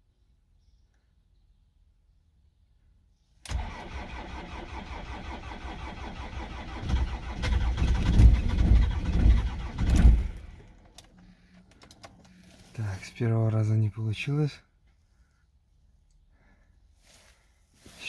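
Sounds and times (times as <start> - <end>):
diesel engine cranking: 3.5 - 11.2.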